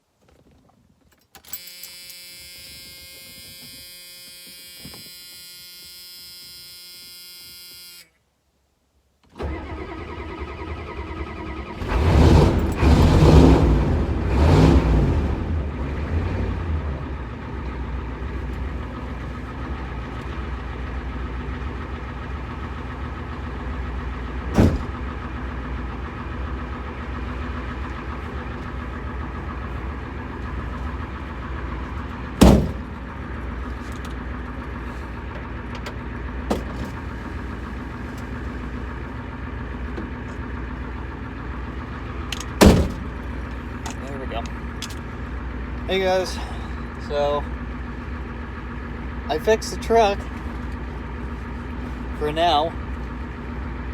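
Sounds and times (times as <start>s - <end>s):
steady buzzing tone: 1.6s - 8.2s
truck engine starting and revving: 9.3s - 53.9s.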